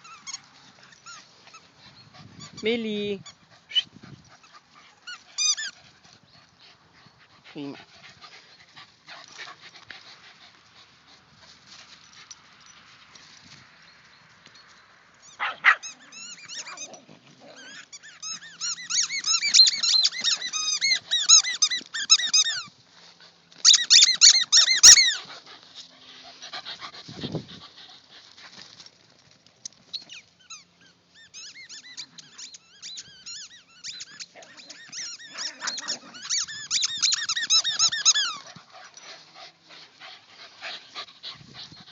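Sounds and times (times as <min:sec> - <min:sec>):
dog squeaking a squeaky toy: 0:00.0 - 0:01.6, 0:02.4 - 0:05.8, 0:15.2 - 0:22.7, 0:23.6 - 0:25.2, 0:29.9 - 0:38.5.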